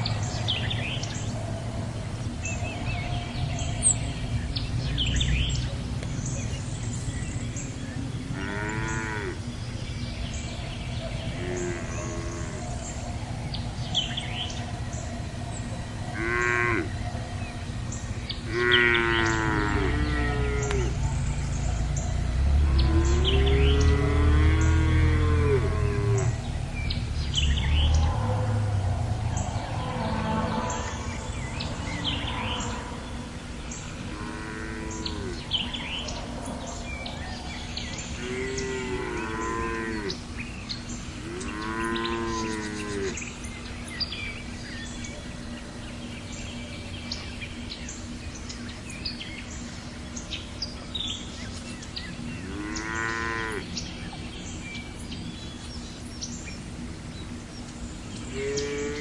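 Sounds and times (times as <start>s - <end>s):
steady low hum: 0.0s - 59.0s
calves mooing: 8.3s - 9.4s, 11.3s - 12.7s, 16.2s - 16.9s, 18.5s - 21.1s, 22.6s - 26.4s, 34.1s - 35.5s, 38.2s - 40.2s, 41.2s - 43.2s, 52.4s - 53.7s, 58.3s - 59.0s.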